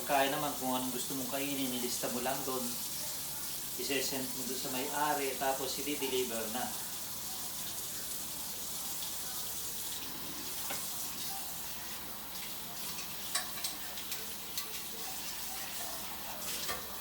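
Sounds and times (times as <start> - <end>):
water running from a tap: 0.0 - 17.0
dishes and utensils clinking: 9.9 - 11.4, 12.4 - 17.0.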